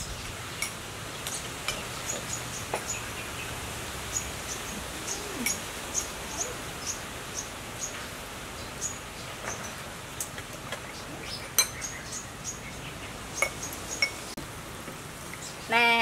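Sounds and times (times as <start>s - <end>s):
spoons clinking on bowls: 11.6s - 11.8s.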